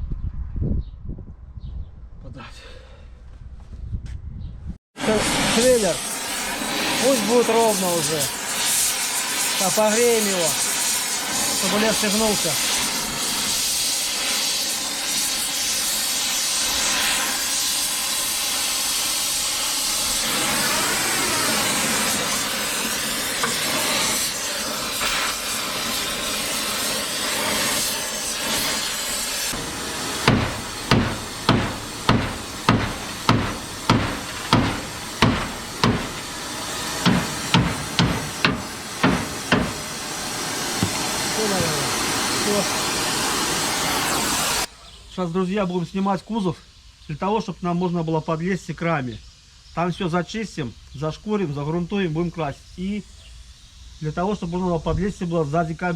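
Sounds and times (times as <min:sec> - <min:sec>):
gas torch hissing: 0:05.0 - 0:44.7
hammer striking metal: 0:29.5 - 0:40.0.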